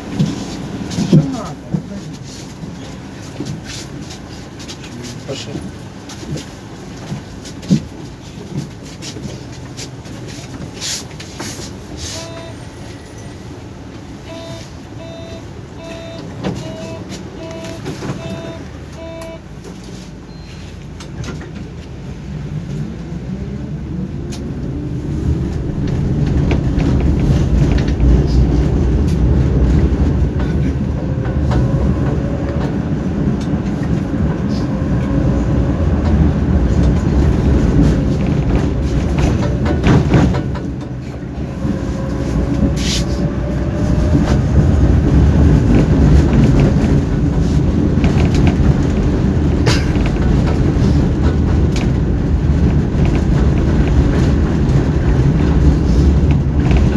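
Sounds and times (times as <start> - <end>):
rail clicks: 0.0 - 23.1, 24.0 - 56.9
tram running rumble: 0.0 - 56.9
short beeps: 12.2 - 13.3, 14.2 - 19.5
tram motor whine: 12.2 - 19.8, 21.7 - 56.9.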